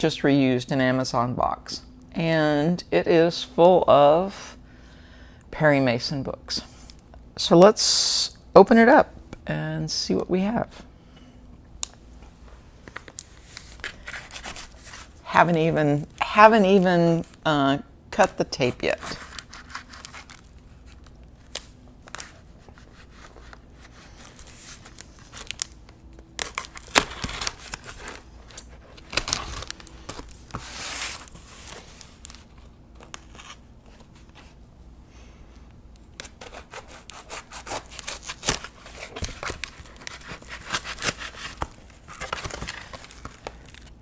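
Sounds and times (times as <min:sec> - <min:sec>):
packing tape ripping: 0:19.0 - 0:33.6, 0:36.2 - 0:44.0.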